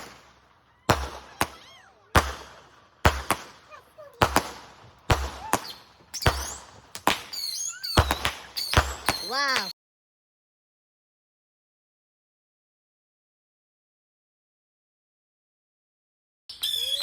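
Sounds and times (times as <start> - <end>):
fireworks bangs: 0.0 - 9.7.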